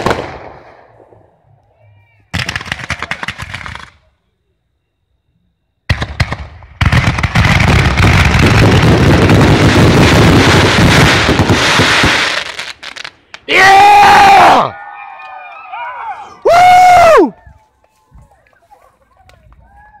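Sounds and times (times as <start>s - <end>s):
sharp fireworks bangs: 0.0s - 1.2s, 2.3s - 4.0s, 5.9s - 13.5s
fireworks booming: 0.0s - 1.4s, 5.9s - 13.5s
fireworks crackling: 5.9s - 13.5s.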